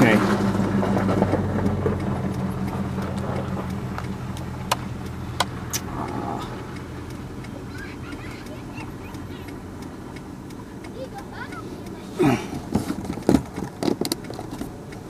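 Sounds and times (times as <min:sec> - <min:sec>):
car engine humming: 0:00.0 - 0:15.0
sharp clicks: 0:00.2 - 0:12.0.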